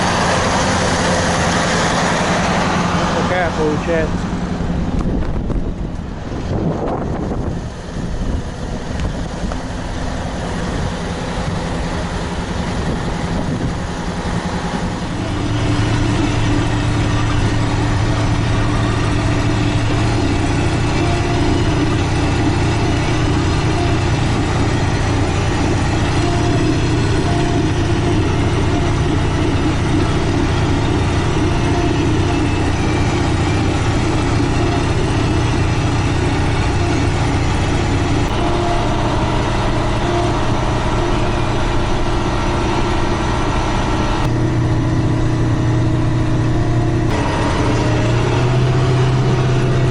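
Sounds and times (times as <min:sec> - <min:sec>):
tractor diesel engine running: 0:00.0 - 0:49.9
wind buffeting microphone: 0:04.1 - 0:11.6, 0:12.4 - 0:14.5.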